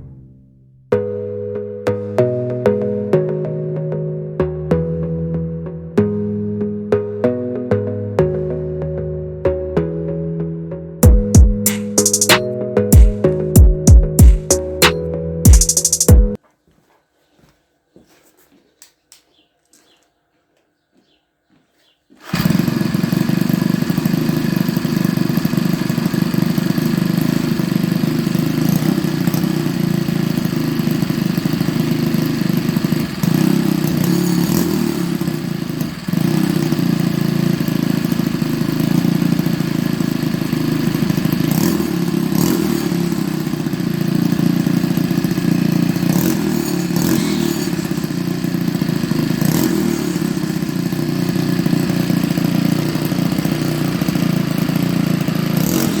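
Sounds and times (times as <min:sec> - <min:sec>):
string trimmer engine running: 0:22.2 - 0:56.0.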